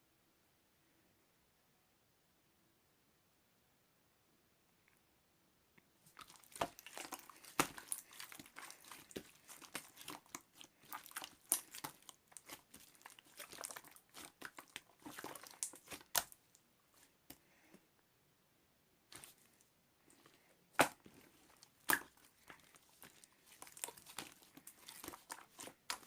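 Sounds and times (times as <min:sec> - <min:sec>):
slime squished by hand popping: 0:20.8 - 0:21.1, 0:21.8 - 0:22.6.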